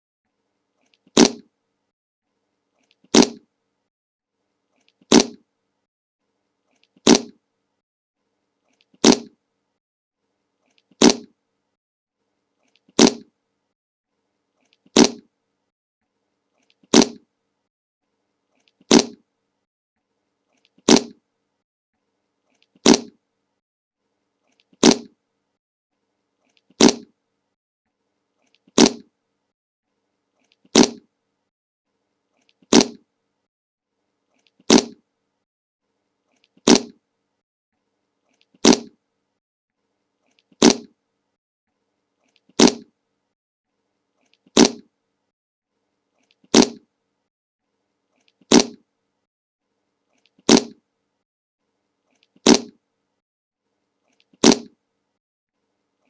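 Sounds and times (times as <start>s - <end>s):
short fart sound: 1.2s - 1.5s, 3.1s - 3.4s, 5.1s - 5.4s, 7.0s - 7.4s, 9.0s - 9.4s, 11.0s - 11.3s, 13.0s - 13.3s, 15.0s - 15.3s, 16.9s - 17.2s, 18.9s - 19.2s, 20.9s - 21.2s, 22.8s - 23.2s, 24.8s - 25.1s, 26.8s - 27.1s, 28.8s - 29.1s, 30.8s - 31.0s, 32.7s - 33.0s, 36.7s - 37.0s, 38.6s - 39.0s, 40.6s - 40.9s, 42.6s - 42.9s, 44.6s - 44.9s, 46.5s - 46.8s, 48.5s - 48.8s, 50.5s - 50.8s, 52.4s - 52.7s.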